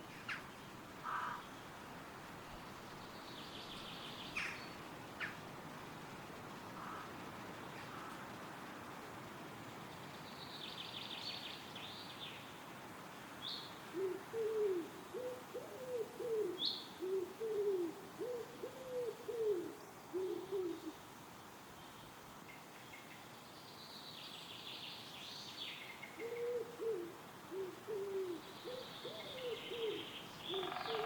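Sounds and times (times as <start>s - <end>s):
songbird chirps: 0.0s - 5.4s, 9.8s - 12.6s, 19.7s - 26.5s, 28.3s - 31.0s
wind rustling in trees: 0.0s - 31.0s
pigeon cooing: 14.0s - 20.9s, 26.2s - 31.0s.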